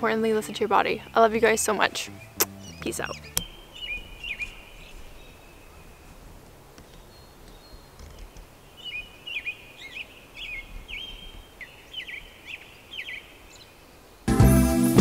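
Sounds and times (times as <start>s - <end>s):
faint outdoor hiss: 0.0s - 15.0s
bird whistles and chirps: 2.2s - 6.0s.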